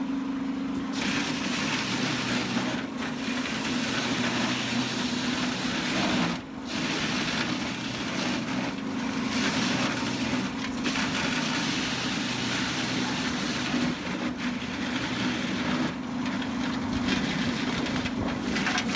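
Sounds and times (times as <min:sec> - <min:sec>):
wood chipper machine hum: 0:00.0 - 0:18.9
wood cracking and splintering: 0:14.8 - 0:18.9.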